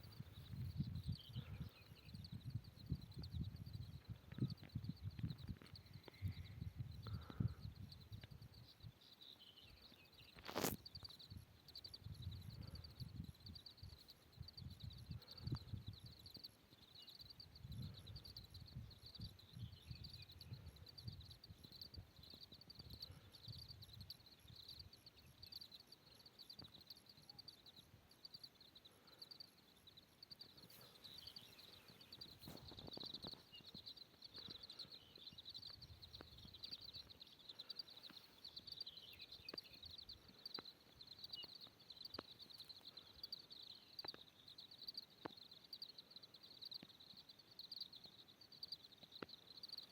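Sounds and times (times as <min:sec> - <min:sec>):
faint chirps: 0:00.0 - 0:49.9
insect chorus trilling: 0:00.0 - 0:49.9.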